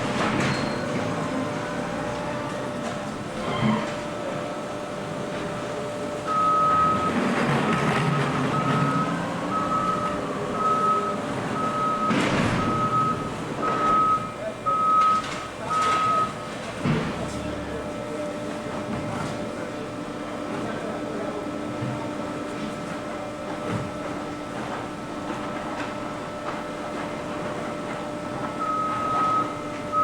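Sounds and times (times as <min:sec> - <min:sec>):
heavy machinery rumble: 0:00.0 - 0:30.0
backup alarm beeping: 0:06.2 - 0:16.6, 0:28.6 - 0:30.0.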